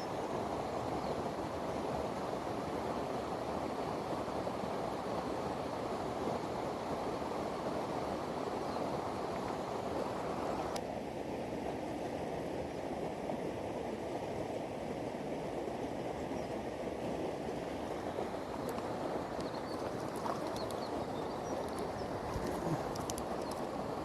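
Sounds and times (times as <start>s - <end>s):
mountain stream rushing: 0.0s - 24.0s.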